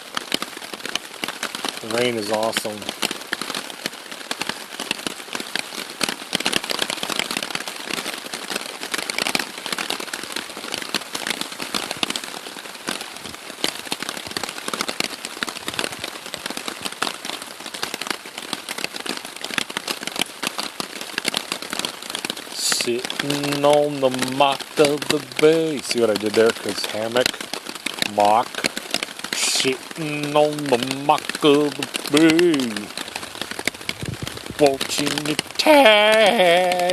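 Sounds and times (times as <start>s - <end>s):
rain on a tarp: 0.0s - 36.9s.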